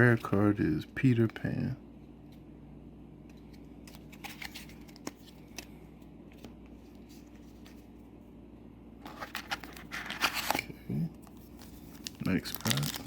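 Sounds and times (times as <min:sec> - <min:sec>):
low room hum: 0:00.0 - 0:13.0
trading cards clicking and rustling: 0:03.3 - 0:07.9, 0:09.1 - 0:13.0.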